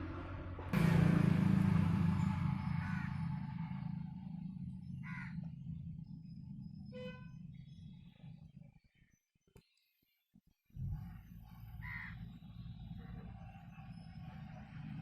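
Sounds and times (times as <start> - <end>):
vehicle passing with loud rumble: 0.0 - 8.8, 10.8 - 15.0.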